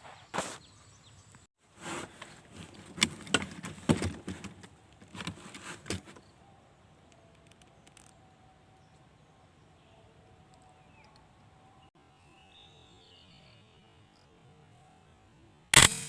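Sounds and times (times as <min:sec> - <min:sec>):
faint outdoor background: 0:00.0 - 0:16.0
handling rustles clicks and knocks: 0:01.8 - 0:06.3.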